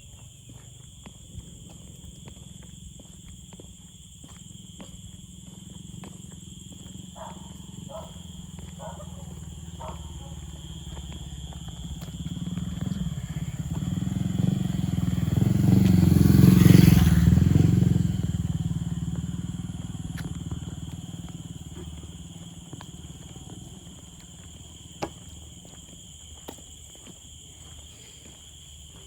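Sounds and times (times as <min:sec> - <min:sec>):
motor vehicle passing by: 0:05.4 - 0:25.5.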